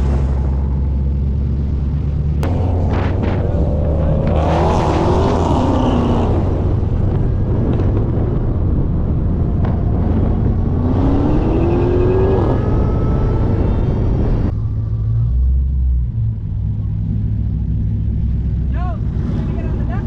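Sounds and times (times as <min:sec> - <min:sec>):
car engine accelerating: 0:00.0 - 0:20.0
low engine rumble: 0:00.0 - 0:20.0
wind and road noise: 0:00.0 - 0:20.0.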